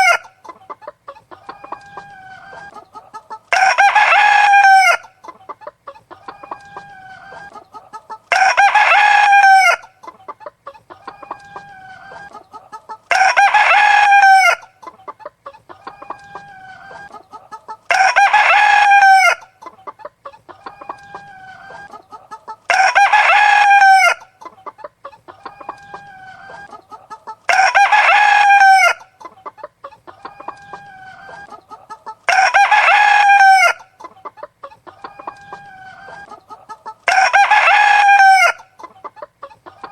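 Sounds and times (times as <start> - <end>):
hens clucking quietly: 0.0 - 39.9
rooster crowing: 3.5 - 5.1, 8.3 - 9.9, 13.1 - 14.7, 17.9 - 19.5, 22.7 - 24.3, 27.5 - 29.1, 30.2 - 33.9, 36.8 - 38.7.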